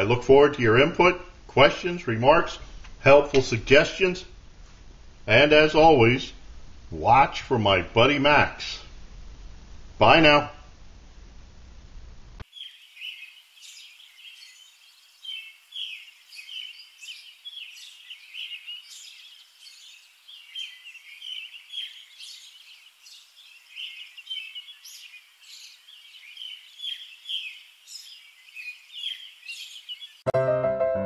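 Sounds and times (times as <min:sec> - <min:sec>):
small birds chirping: 0:12.4 - 0:30.3.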